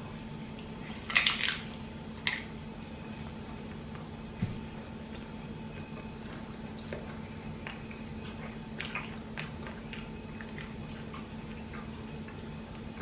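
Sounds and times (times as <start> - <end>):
person chewing food: 3.1 - 13.0.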